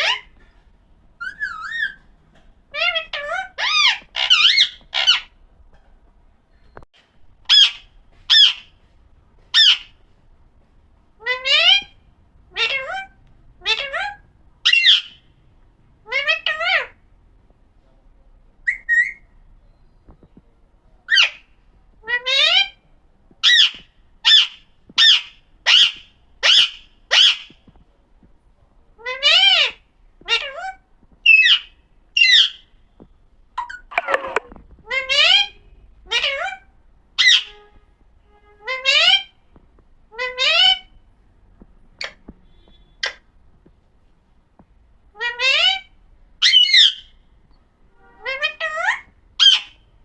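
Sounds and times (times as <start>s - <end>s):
parakeet calling: 0.0s - 0.4s, 1.2s - 2.0s, 2.7s - 5.4s, 7.4s - 8.7s, 9.5s - 10.0s, 11.2s - 15.3s, 21.1s - 22.8s, 23.4s - 27.6s, 29.0s - 32.7s, 33.6s - 37.6s, 38.6s - 39.4s, 40.1s - 41.0s, 45.2s - 47.2s, 48.2s - 49.8s
parrot squawking: 0.0s - 0.4s, 1.2s - 2.0s, 2.7s - 5.4s, 7.4s - 8.7s, 9.5s - 10.0s, 11.2s - 15.2s, 16.0s - 17.0s, 18.6s - 19.2s, 21.1s - 22.8s, 23.4s - 27.6s, 29.0s - 32.7s, 33.6s - 37.6s, 38.6s - 39.3s, 40.1s - 41.0s, 45.1s - 47.2s, 48.2s - 49.8s.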